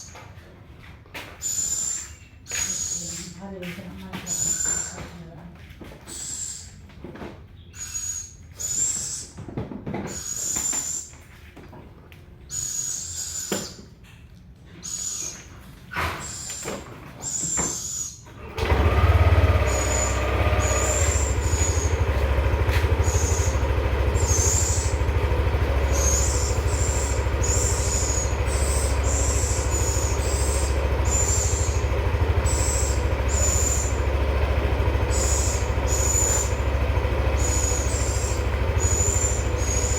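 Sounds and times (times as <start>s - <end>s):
loud steady low rumble: 18.5s - 39.9s
young owls hissing calls: 25.9s - 31.7s, 35.1s - 36.5s.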